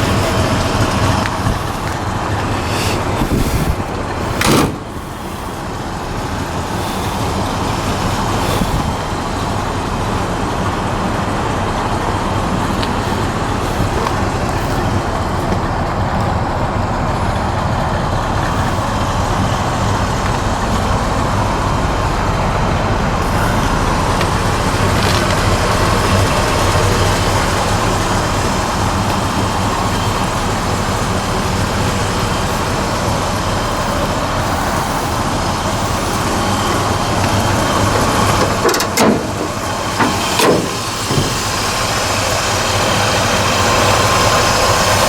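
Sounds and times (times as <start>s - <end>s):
road noise: 0.0s - 45.0s
truck engine hum: 0.0s - 45.0s
loud knock: 4.4s - 5.0s.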